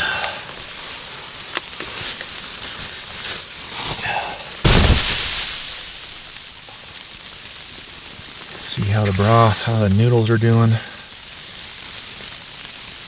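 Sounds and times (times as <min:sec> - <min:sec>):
loud burst with low thump: 0:04.7 - 0:06.5.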